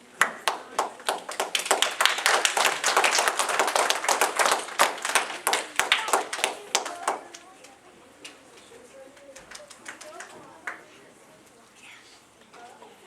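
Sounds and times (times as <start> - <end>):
audience applauding: 0.0 - 7.8, 9.1 - 10.9.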